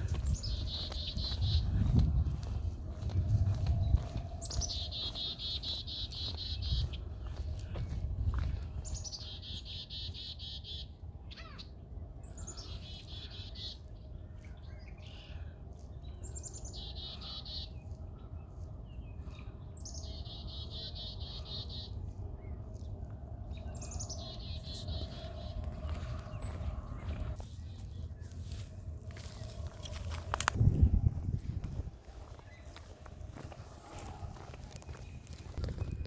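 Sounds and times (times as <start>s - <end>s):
low background rumble: 13.4s - 36.0s.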